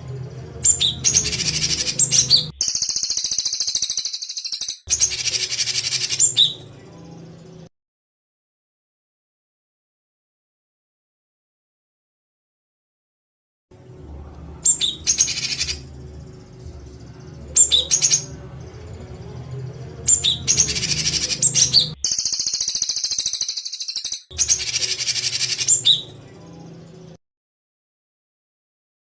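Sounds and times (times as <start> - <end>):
low hum: 0.0 - 2.6, 13.7 - 22.0
songbird harsh rapid calls: 1.1 - 6.4, 20.1 - 26.0.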